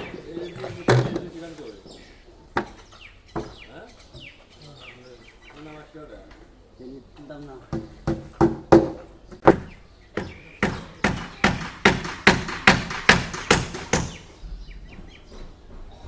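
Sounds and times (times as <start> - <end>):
sharp construction knocks: 0.0 - 1.4, 2.6 - 4.3, 7.7 - 14.3.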